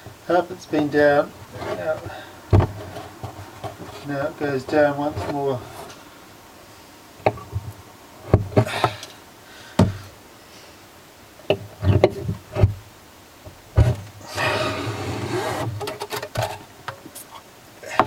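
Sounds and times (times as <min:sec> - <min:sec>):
string rasping pulled tight: 0:14.3 - 0:16.6.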